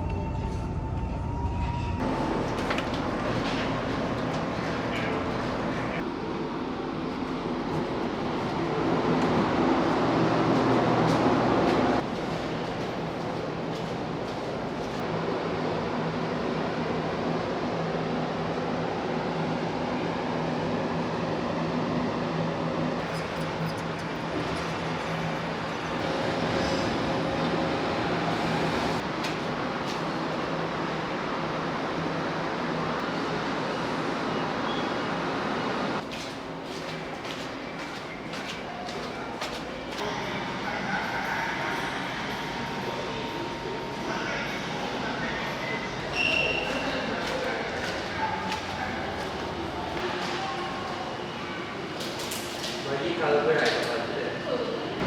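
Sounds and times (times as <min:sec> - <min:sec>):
train wheels rumbling on rails: 0:00.0 - 0:15.1.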